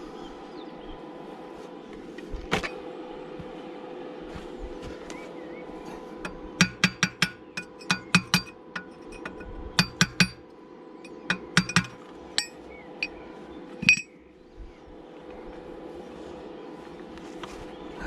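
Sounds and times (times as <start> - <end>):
steady hum: 0.0 - 18.0
hammer striking steel: 6.2 - 13.2.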